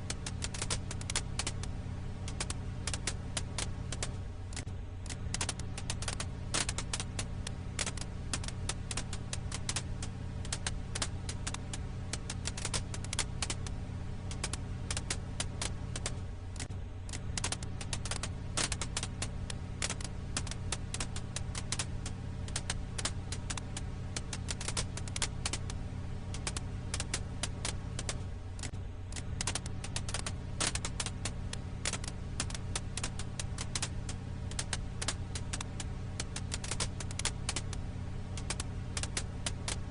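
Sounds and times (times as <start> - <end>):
firewood crackling in a campfire: 0.0 - 39.9
steady low hum: 0.0 - 39.9.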